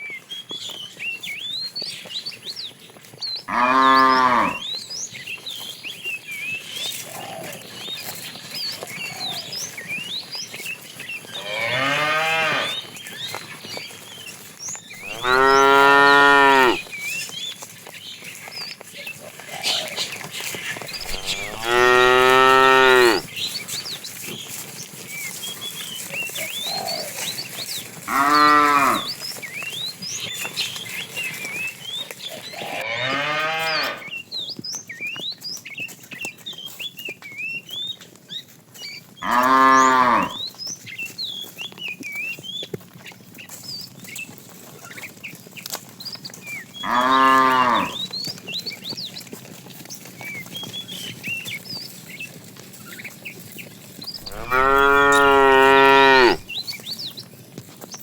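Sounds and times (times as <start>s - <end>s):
cow mooing: 3.5s - 4.7s, 11.4s - 12.8s, 15.0s - 16.9s, 21.0s - 23.3s, 28.1s - 29.1s, 32.6s - 34.1s, 39.2s - 40.4s, 46.8s - 48.0s, 54.2s - 56.4s.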